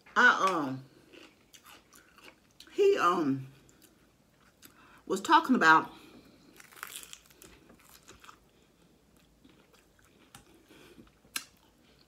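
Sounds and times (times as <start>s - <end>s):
chewing with shell crackles: 0.9s - 2.8s, 3.6s - 4.9s, 6.2s - 12.0s
crunching bite of taco shell: 6.5s - 8.5s.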